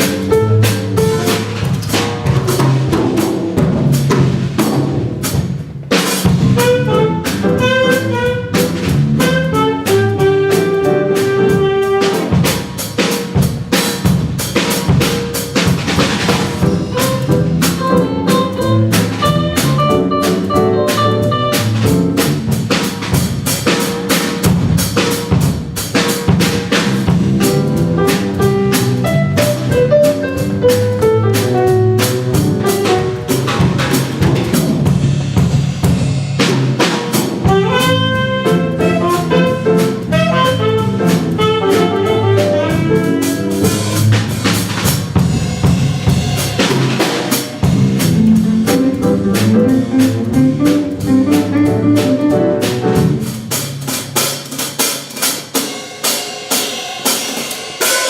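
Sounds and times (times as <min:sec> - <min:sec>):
walking bass: 0:00.0 - 0:55.1
drum kit with snare accents: 0:00.0 - 0:58.0
jazz ensemble playing swing: 0:00.0 - 0:58.0.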